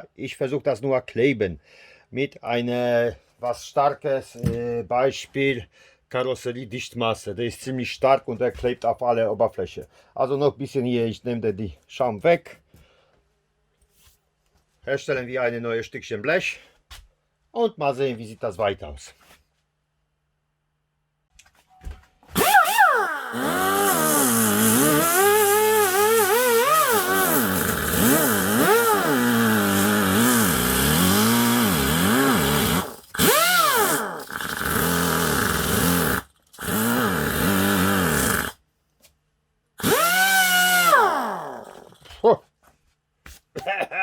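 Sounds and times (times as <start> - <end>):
power tool cutting sheet metal: 22.3 - 38.6, 39.8 - 42.0.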